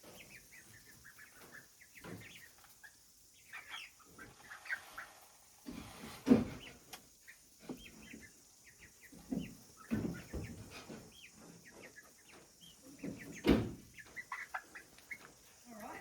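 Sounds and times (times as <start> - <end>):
baby chicks cheeping: 0.0 - 16.0
low rustles and thumps: 5.6 - 6.8.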